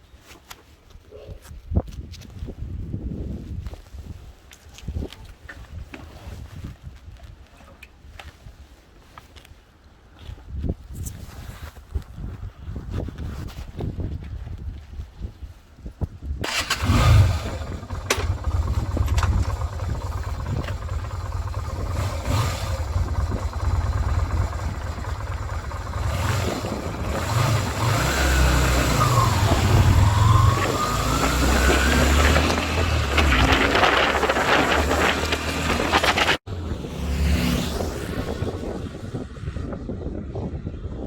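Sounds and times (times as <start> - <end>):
motorcycle engine starting and revving: 16.4 - 39.9.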